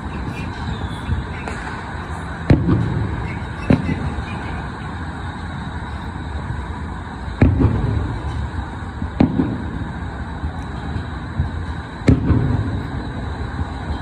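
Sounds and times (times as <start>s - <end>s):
city traffic hum: 0.0s - 14.0s
low rumbling echo: 0.0s - 14.0s
firework shell bang: 0.7s - 4.4s, 7.4s - 9.9s, 10.8s - 13.2s.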